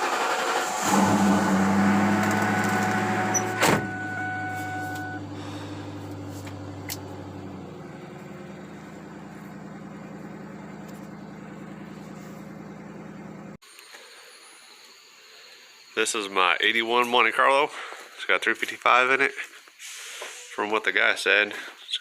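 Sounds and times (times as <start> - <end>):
car engine idling: 0.0 - 13.6.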